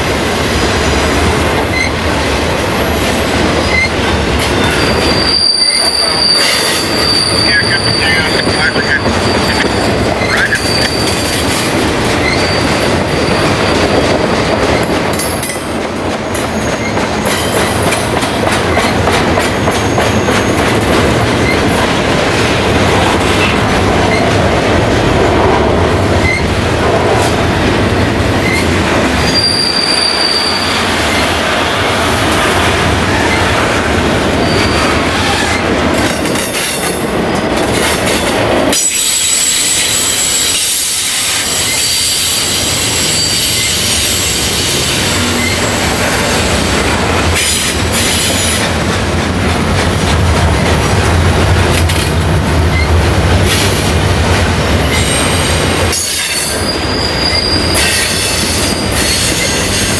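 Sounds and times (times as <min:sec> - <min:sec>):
clickety-clack of wheels: 0:00.0 - 0:29.4, 0:32.2 - 0:42.0, 0:44.5 - 0:59.9
train wheels rumbling on rail: 0:00.0 - 0:59.9
high wheel squeal: 0:01.6 - 0:02.1, 0:03.6 - 0:11.5, 0:12.2 - 0:13.6, 0:19.7 - 0:20.6, 0:27.9 - 0:31.4, 0:34.3 - 0:35.6, 0:38.7 - 0:46.8, 0:54.8 - 0:59.9.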